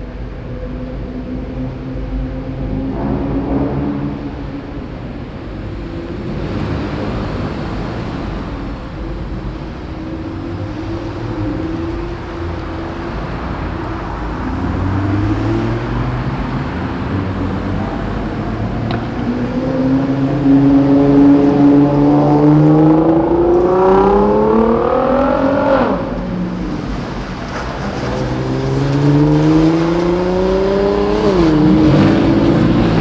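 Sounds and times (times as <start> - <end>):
car engines running: 0.0 - 33.0
engine revving: 1.2 - 33.0.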